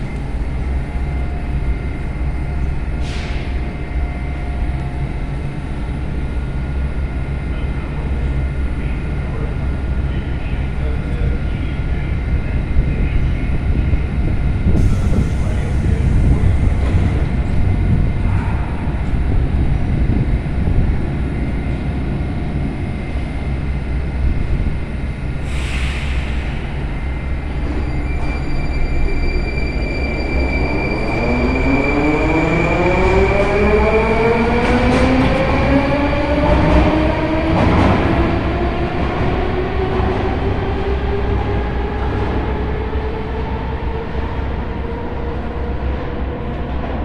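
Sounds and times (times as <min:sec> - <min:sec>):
train low rumble: 0:00.0 - 0:47.0.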